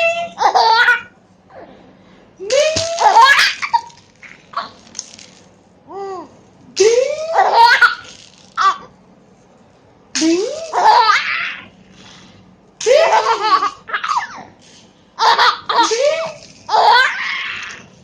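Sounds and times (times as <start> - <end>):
baby laughing: 0.0 - 1.2, 2.5 - 4.8, 5.9 - 8.9, 10.2 - 11.7, 12.8 - 14.6, 15.2 - 17.8.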